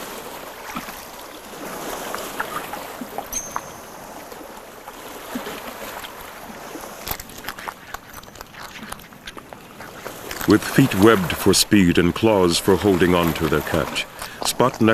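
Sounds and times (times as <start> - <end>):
water lapping and splashing: 0.0 - 14.9.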